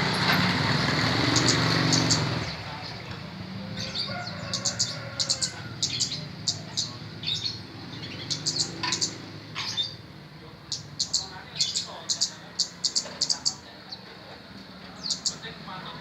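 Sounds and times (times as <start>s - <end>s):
small bird chirping: 1.3s - 2.9s, 3.8s - 14.1s, 15.0s - 15.6s.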